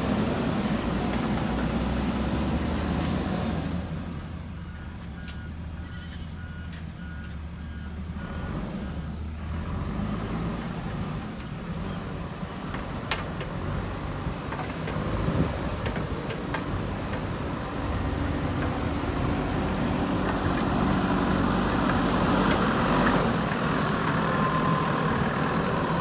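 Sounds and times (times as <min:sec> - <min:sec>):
diesel engine running: 0:00.0 - 0:26.0
reversing alarm beeping: 0:04.6 - 0:08.4, 0:24.1 - 0:26.0.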